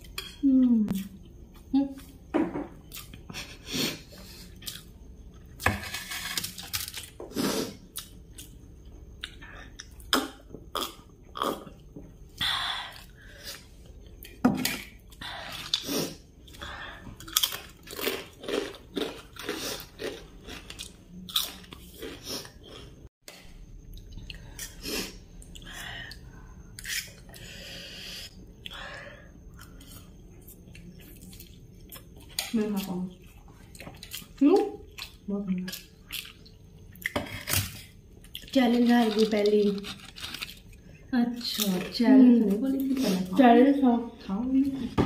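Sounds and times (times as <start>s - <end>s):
people chewing noodles: 15.0s - 23.0s, 23.8s - 41.9s.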